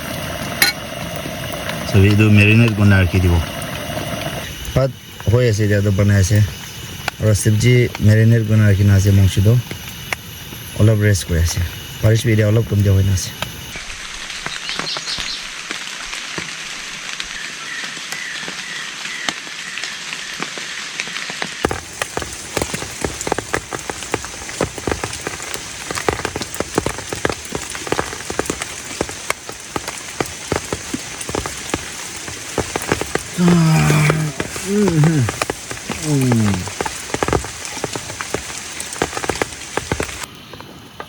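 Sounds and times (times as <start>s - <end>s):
heavy rain: 0.0s - 41.0s
raindrops striking a surface: 0.0s - 41.0s.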